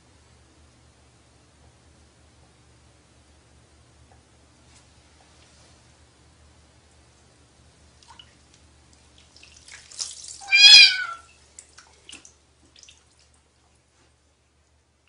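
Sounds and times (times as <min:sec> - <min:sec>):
water dripping: 0:07.9 - 0:13.8
water splashing: 0:08.0 - 0:13.4
kitten meowing: 0:10.4 - 0:11.3.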